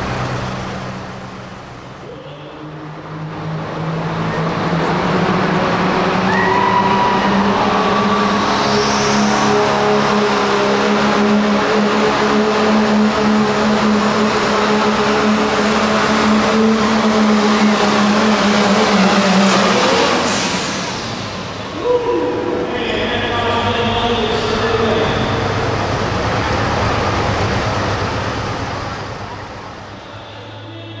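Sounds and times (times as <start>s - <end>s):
diesel engine under load: 0.0s - 31.0s
turbocharger whistle: 6.1s - 22.4s.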